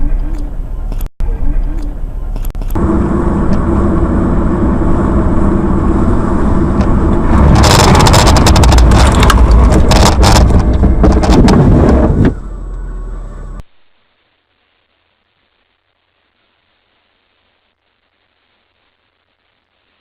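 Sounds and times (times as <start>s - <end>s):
car engine and road noise: 0.0s - 13.7s
rapid clattering knocks: 7.4s - 12.0s.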